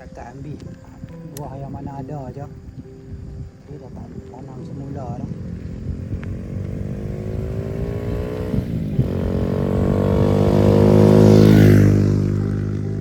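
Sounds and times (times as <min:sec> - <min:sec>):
vehicle passing by: 0:04.6 - 0:13.0.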